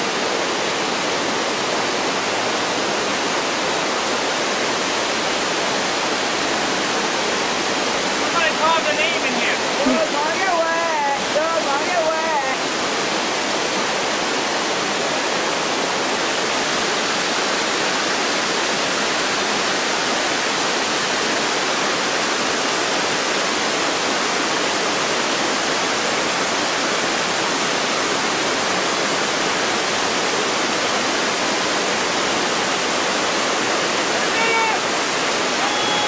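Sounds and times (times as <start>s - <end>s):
creek water rushing over rocks: 0.0s - 36.0s.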